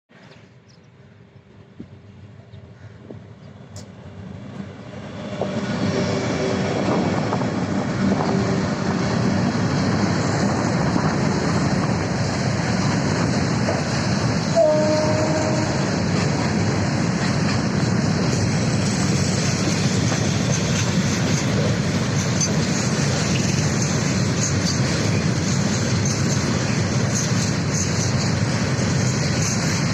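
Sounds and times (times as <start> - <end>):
train running: 0.2 - 29.9
train horn note: 14.5 - 16.1.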